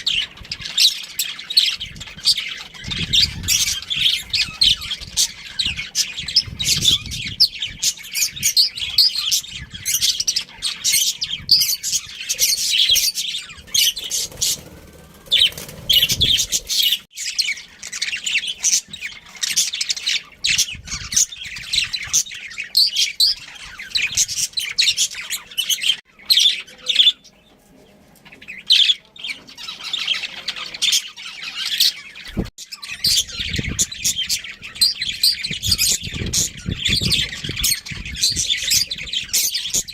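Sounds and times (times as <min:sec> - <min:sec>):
budgerigars chattering: 0:00.0 - 0:27.4, 0:28.2 - 0:39.9.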